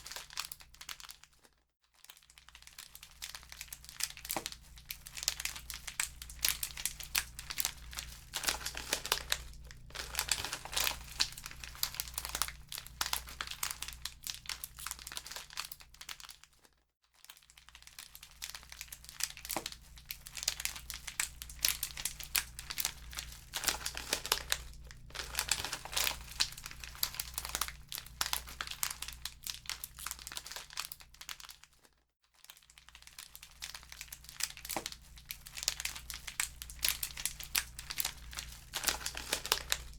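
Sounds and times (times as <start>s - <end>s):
wood fire crackling: 5.1s - 14.5s, 20.3s - 29.2s, 35.5s - 39.9s.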